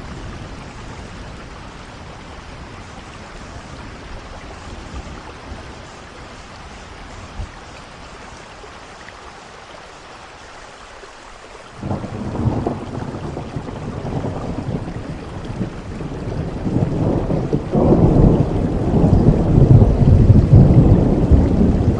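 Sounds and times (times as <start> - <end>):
steady rain falling: 0.0 - 21.9
thunder rumbling: 11.8 - 21.9.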